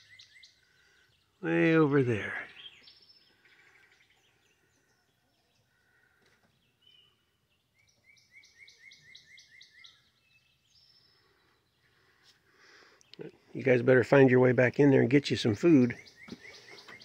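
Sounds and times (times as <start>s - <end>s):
bird repeated chirps: 0.0s - 5.2s, 6.7s - 12.0s, 15.8s - 17.0s
bird calls: 0.0s - 14.3s, 15.4s - 17.0s.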